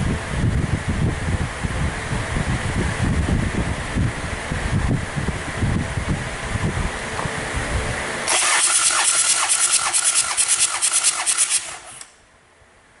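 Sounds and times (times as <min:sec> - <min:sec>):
starter motor cranking engine: 0:08.3 - 0:12.2.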